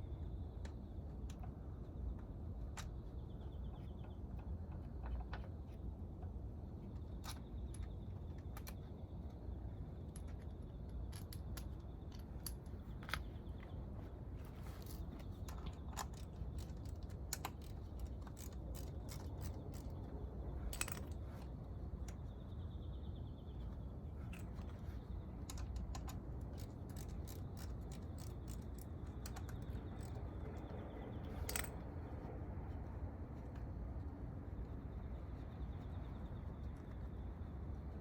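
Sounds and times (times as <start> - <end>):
metallic clicks of hand tools: 14.8 - 20.1, 20.7 - 21.2, 25.4 - 30.7, 31.3 - 31.8.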